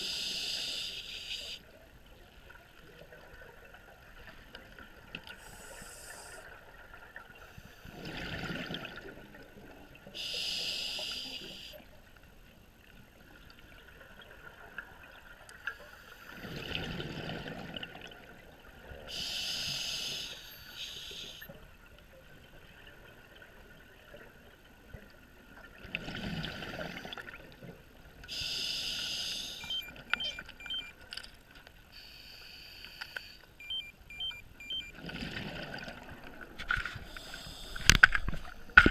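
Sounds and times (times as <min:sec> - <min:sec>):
regulator inhale hiss: 0:00.0 - 0:01.6, 0:05.4 - 0:06.5, 0:10.2 - 0:11.8, 0:19.1 - 0:21.5, 0:28.3 - 0:29.7, 0:31.9 - 0:33.4, 0:37.0 - 0:38.1.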